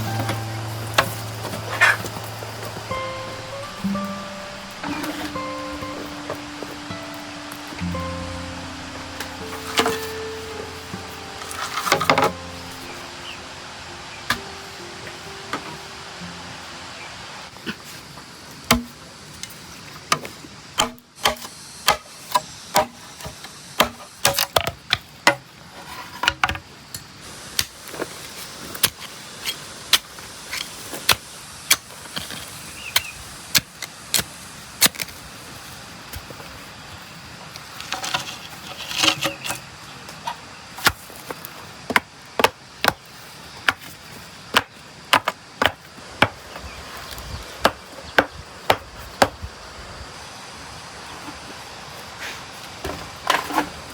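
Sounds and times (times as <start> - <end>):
steady hiss: 0.0 - 53.9
sharp hammer strikes: 20.8 - 23.0.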